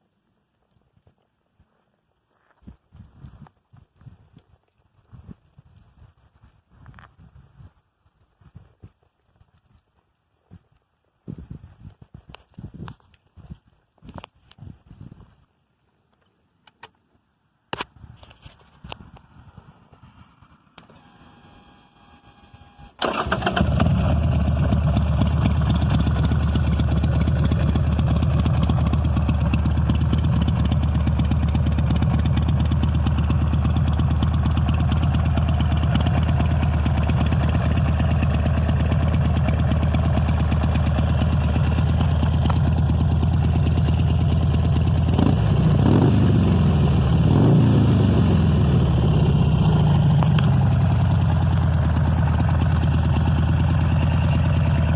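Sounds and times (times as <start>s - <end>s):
motorcycle engine starting and idling: 20.4s - 54.9s
motorcycle throttle blips: 22.5s - 54.9s.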